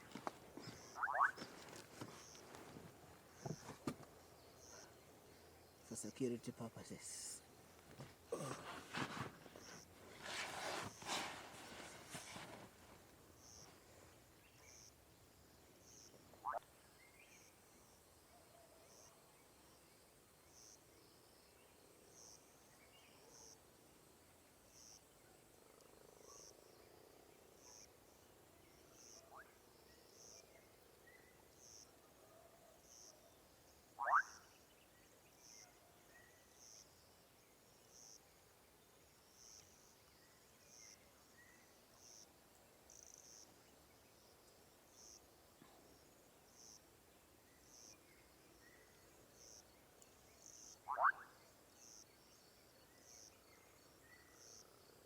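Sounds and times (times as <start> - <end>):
frogs calling: 0.0 - 2.6, 15.9 - 16.7, 33.9 - 34.6, 50.4 - 52.0
short rising frog calls: 0.7 - 1.5, 16.4 - 16.6, 34.0 - 34.5, 50.8 - 51.4.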